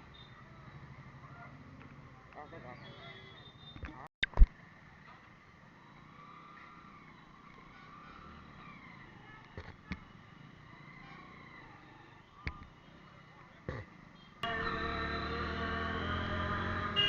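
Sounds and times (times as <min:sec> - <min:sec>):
faint road vehicle engine: 0:00.0 - 0:04.0, 0:04.6 - 0:17.0.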